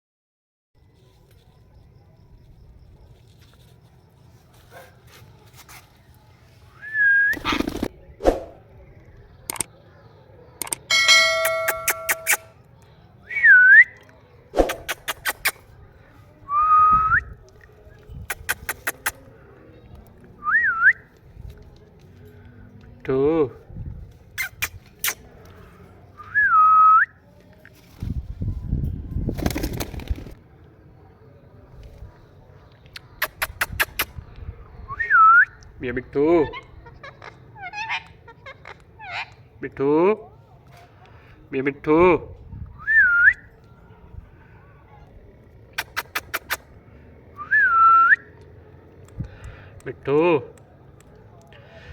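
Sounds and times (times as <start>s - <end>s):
rustling and scuffling: 3.1s - 6.7s
parrot squawk: 36.5s - 39.4s.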